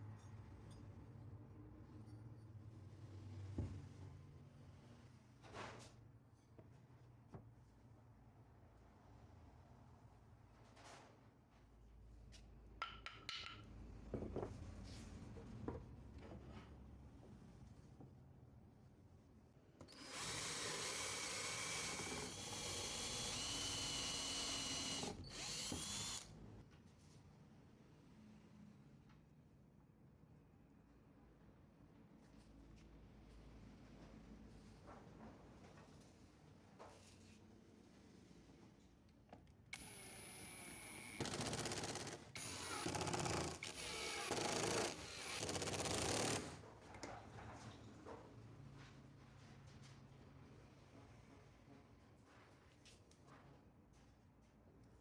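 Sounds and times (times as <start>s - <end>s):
power tool running with whine: 19.9s - 26.2s
power tool whining and grinding: 19.9s - 26.3s, 39.8s - 46.6s.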